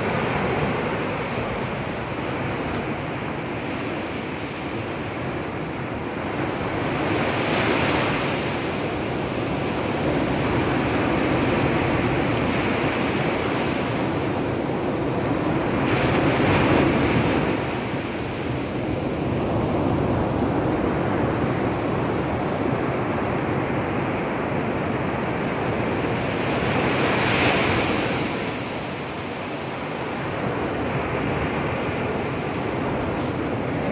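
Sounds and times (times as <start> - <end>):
surf breaking on beach: 30.5 - 33.9.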